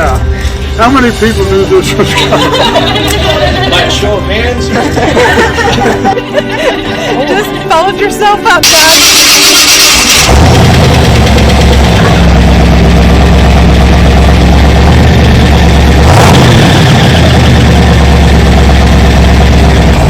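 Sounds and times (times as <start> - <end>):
car engine idling: 8.7 - 20.0.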